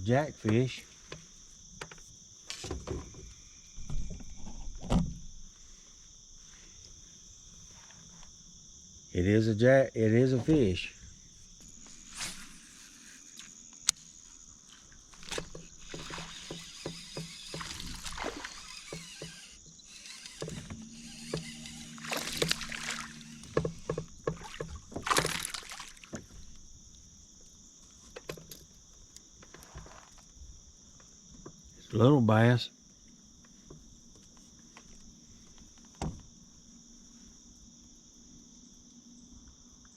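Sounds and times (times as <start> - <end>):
insects chirring: 0.0 - 39.9
knocks and clicks against boat: 0.4 - 5.3, 15.0 - 19.4, 20.4 - 30.4, 33.4 - 36.3
fish splashing: 14.8 - 19.2, 21.0 - 26.3.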